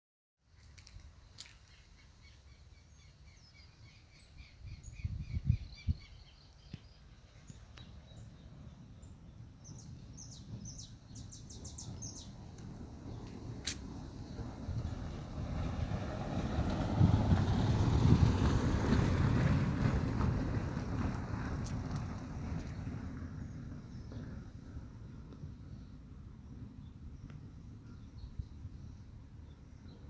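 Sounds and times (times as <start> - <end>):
birds chirping: 0.6 - 13.3
low rumble: 4.4 - 30.0.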